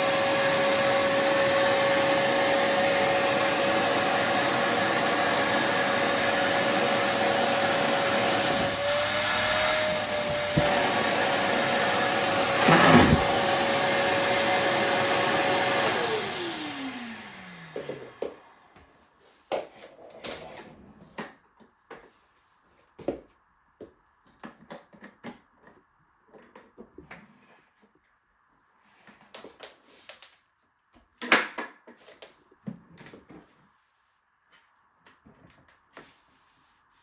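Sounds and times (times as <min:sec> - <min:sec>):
vacuum cleaner whine: 0:00.0 - 0:19.0.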